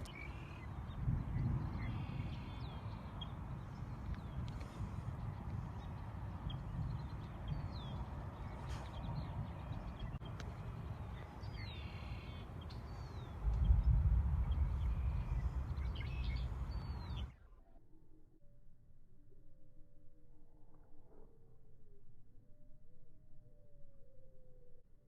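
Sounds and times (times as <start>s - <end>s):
small birds chirping: 0.0s - 17.4s
low outdoor rumble: 0.0s - 17.5s.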